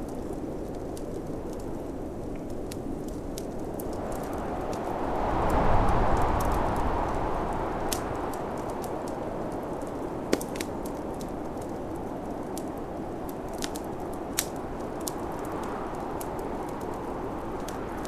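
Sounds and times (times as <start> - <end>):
wood fire crackling and popping: 0.0 - 18.0
snowstorm wind rushing: 3.6 - 12.2.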